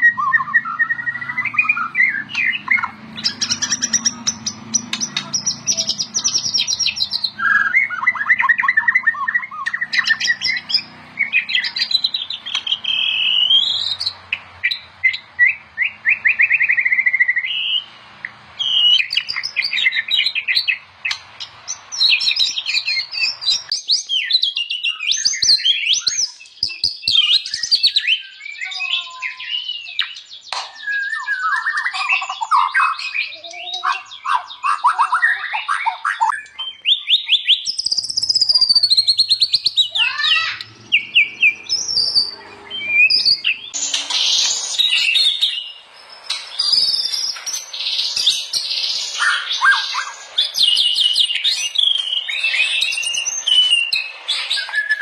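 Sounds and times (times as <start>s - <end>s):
bird singing whistles and trills: 0.0s - 18.0s, 18.6s - 55.0s.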